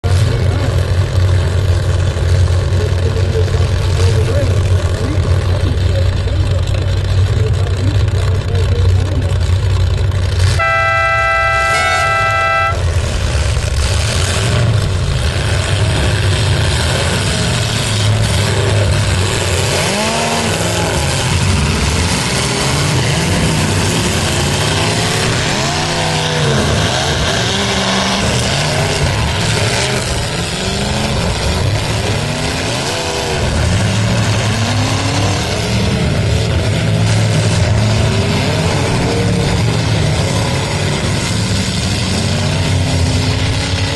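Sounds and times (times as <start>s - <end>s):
car engines revving: 0.0s - 43.9s
car horn blast: 10.5s - 12.9s.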